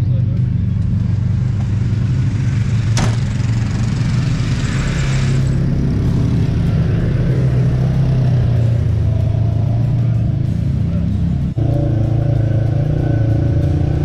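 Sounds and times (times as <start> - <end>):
vehicle engine running: 0.0 - 14.0
sharp knock: 3.0 - 3.3.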